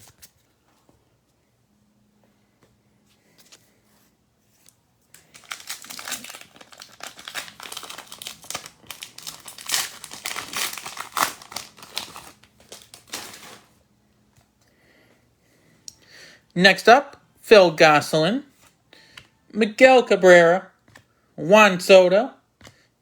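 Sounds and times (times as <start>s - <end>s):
wrapper tearing and crinkling: 5.1s - 13.7s.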